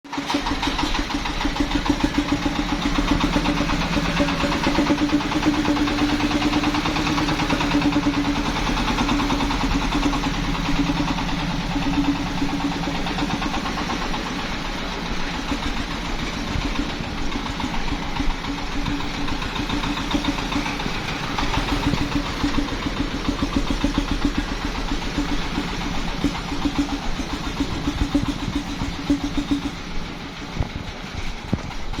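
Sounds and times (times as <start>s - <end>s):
engine chugging at idle: 0.0s - 32.0s.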